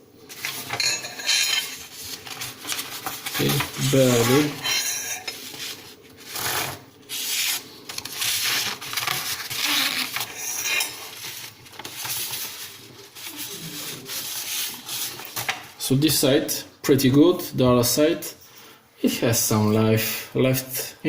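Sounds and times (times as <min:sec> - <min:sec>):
paper and straight edge scraping glass: 0:01.2 - 0:15.5.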